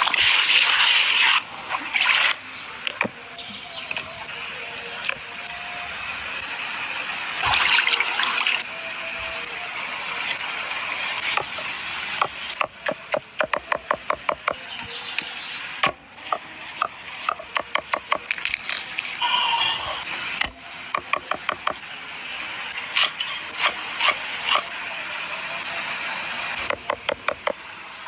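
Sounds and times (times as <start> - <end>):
water pouring: 7.4 - 8.7.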